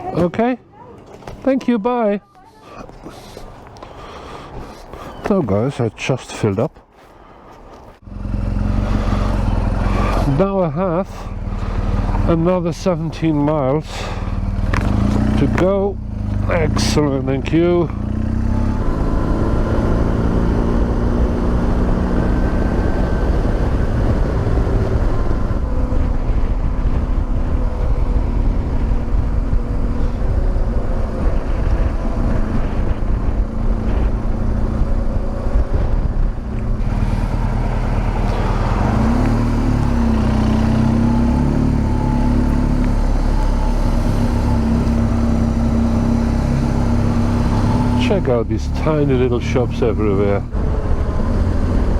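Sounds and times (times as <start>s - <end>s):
motorcycle engine running: 8.0s - 51.9s
wind noise on microphone: 18.7s - 41.4s, 50.5s - 51.9s.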